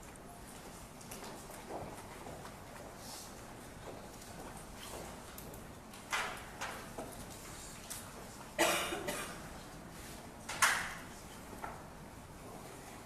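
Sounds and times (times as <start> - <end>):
person coughing: 8.6 - 9.4.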